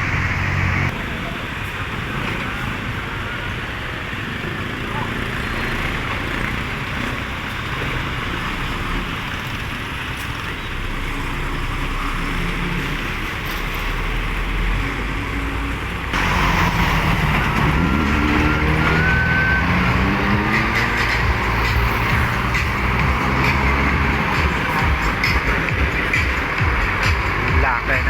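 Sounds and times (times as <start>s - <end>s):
heavy vehicle accelerating: 0.0s - 28.0s
highway traffic rumble: 0.0s - 28.0s.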